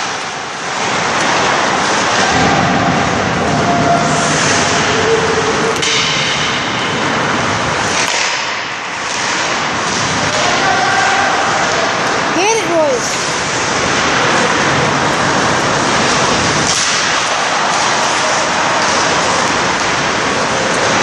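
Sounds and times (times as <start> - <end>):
skating and play noise: 0.0 - 21.0
sharp crack: 7.8 - 10.8, 15.9 - 21.0.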